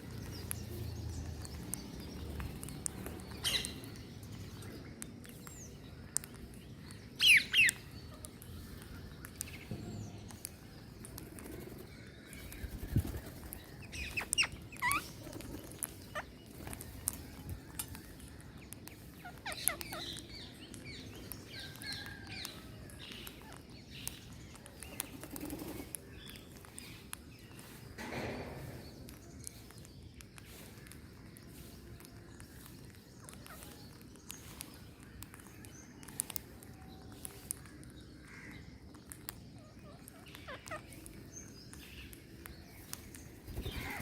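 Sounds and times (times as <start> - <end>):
small clicks: 13.2 - 27.2, 28.4 - 38.0.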